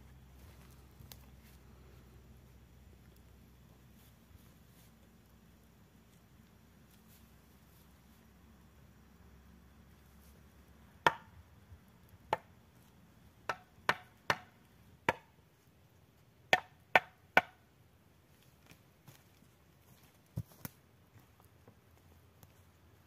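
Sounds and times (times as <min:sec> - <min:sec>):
wood being chopped: 0:11.0 - 0:11.3, 0:12.3 - 0:12.5, 0:13.4 - 0:15.3, 0:16.5 - 0:17.6.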